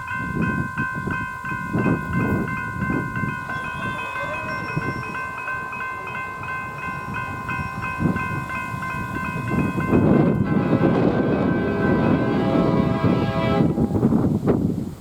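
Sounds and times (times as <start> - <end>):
high whine of train: 0.0 - 15.0
train rumbling: 1.4 - 15.0.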